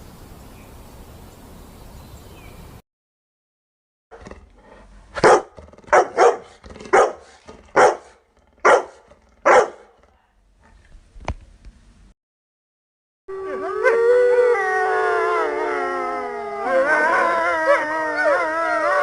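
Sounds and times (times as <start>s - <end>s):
dog barking: 4.7s - 10.1s.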